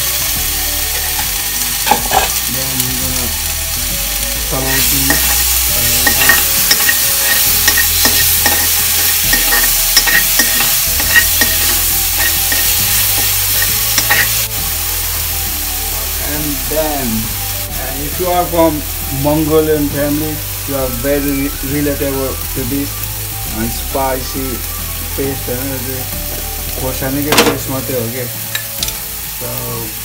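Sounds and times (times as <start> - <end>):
onions sizzling in hot oil: 0.0 - 30.0
spoon scraping a pan: 0.9 - 2.5, 4.7 - 14.5.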